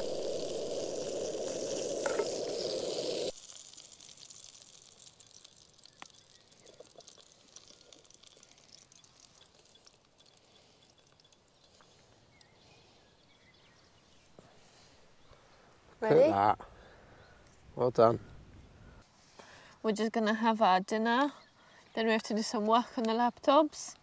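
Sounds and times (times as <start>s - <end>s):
food sizzling in a pan: 0.0s - 10.4s
small ticks: 0.0s - 13.7s.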